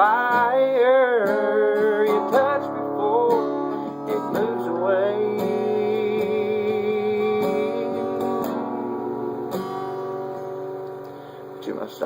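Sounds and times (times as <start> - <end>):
man singing with vibrato: 0.0 - 8.6
acoustic guitar strumming: 0.0 - 12.0.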